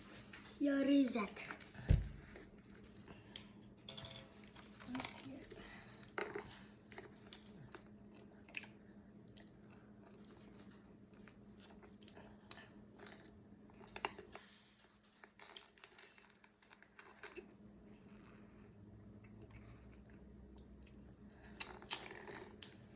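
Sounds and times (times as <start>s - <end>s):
low steady hum: 0.0s - 22.9s
person chewing a snack: 5.7s - 22.9s.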